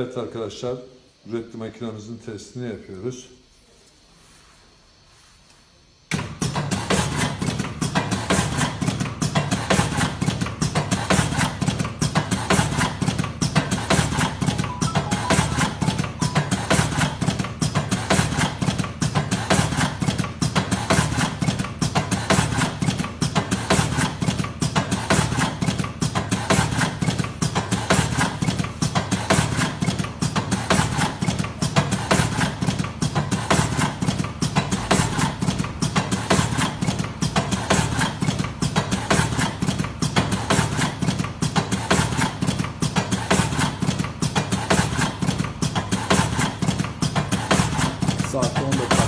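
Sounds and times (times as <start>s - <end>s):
machine clacking rhythmically: 6.5s - 49.0s.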